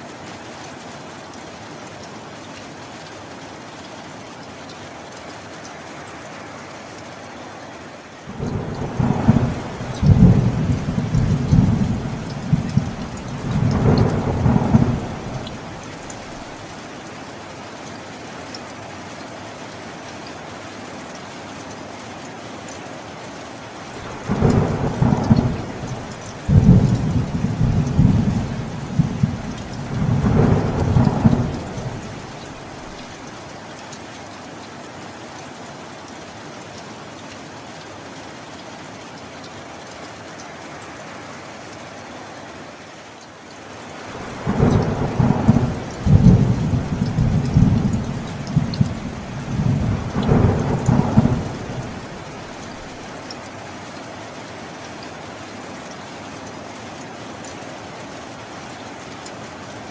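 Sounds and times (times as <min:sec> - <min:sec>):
steady rain: 0:00.0 - 0:59.9
rolling thunder: 0:08.3 - 0:16.6, 0:24.0 - 0:33.1, 0:44.2 - 0:53.1.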